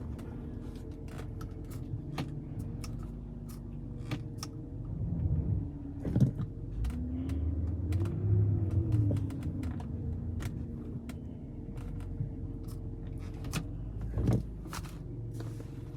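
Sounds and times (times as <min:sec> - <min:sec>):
car engine running: 0:00.0 - 0:15.9
sharp clicks and light knocks: 0:06.0 - 0:15.0.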